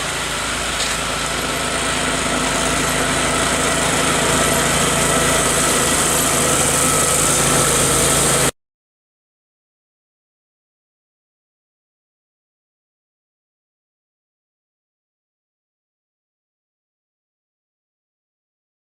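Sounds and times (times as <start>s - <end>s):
small tractor engine running: 0.0s - 8.6s.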